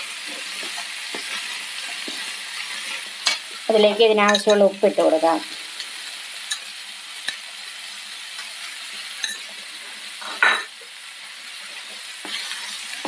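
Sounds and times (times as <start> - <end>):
wooden spatula stirring vegetables: 0.0 - 7.4, 11.6 - 13.0
vegetables sizzling in a frying pan: 0.0 - 13.0.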